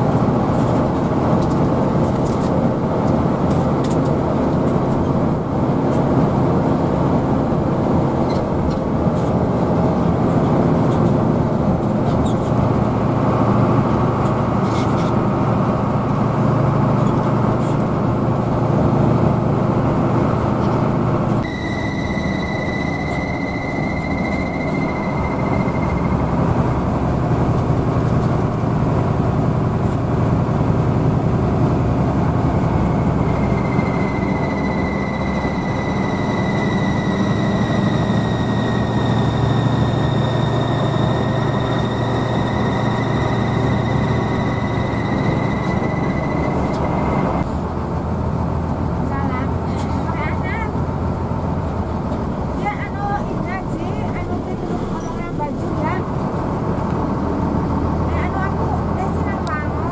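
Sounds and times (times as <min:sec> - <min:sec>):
bus engine and road rumble: 0:00.0 - 0:59.9
high steady whine: 0:21.4 - 0:27.0, 0:32.5 - 0:47.5.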